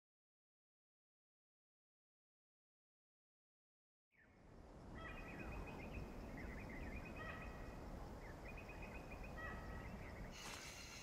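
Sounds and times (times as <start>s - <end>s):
birds chirping trills: 4.2s - 11.0s
high insect buzz: 10.3s - 11.0s.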